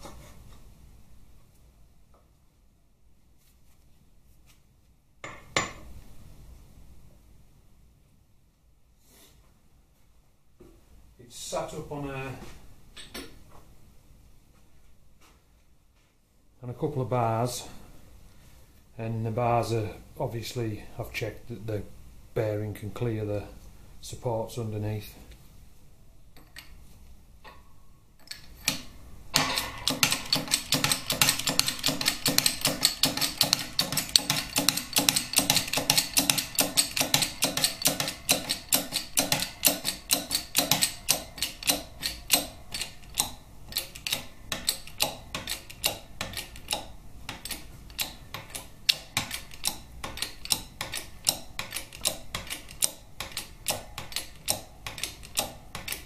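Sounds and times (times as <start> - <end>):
shop press clicking: 28.2 - 56.0.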